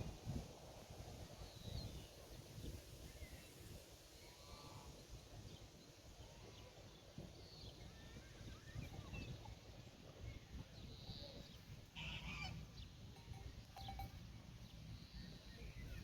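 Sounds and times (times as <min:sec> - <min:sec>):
low rumble of wind: 0:00.0 - 0:16.0
distant bird chirps: 0:10.8 - 0:16.0.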